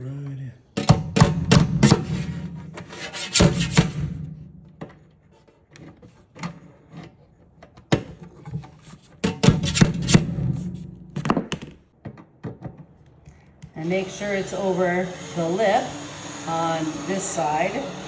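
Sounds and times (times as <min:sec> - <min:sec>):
plastic parts knocking and scraping: 0:00.8 - 0:13.7.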